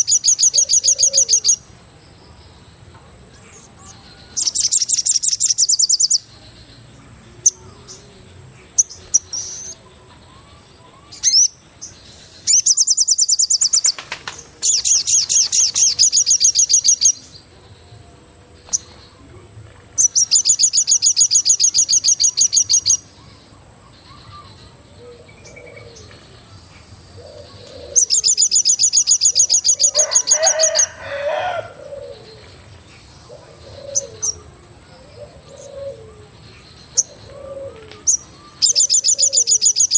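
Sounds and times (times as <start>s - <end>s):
birds cooing: 0.0s - 1.6s, 24.1s - 26.4s, 27.1s - 39.9s
birds chirping trills: 0.0s - 39.9s.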